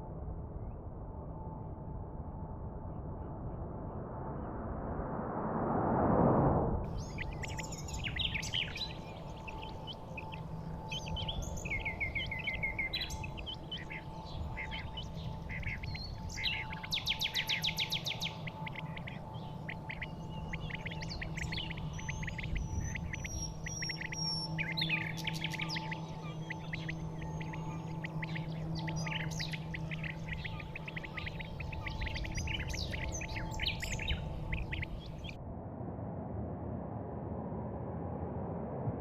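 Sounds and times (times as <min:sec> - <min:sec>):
steady low hum: 0:00.0 - 0:39.0
birds chirping and trilling: 0:06.9 - 0:35.4.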